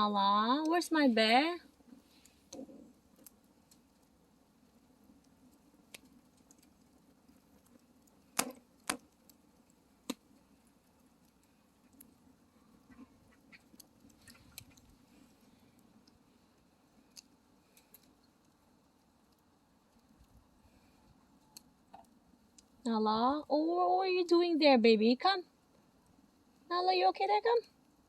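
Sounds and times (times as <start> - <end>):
wood fire crackling: 0.0 - 28.0
sharp pops: 8.3 - 9.1.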